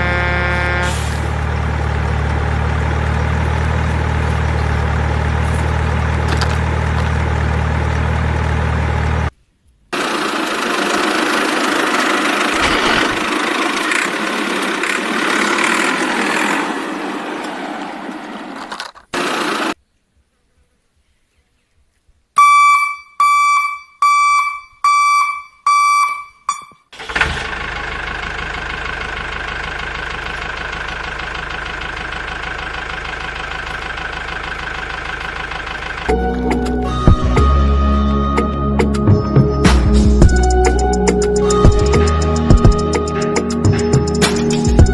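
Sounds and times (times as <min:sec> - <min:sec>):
short horn beeps: 0:00.0 - 0:01.2
vehicle engine running: 0:00.0 - 0:19.8, 0:27.1 - 0:44.9.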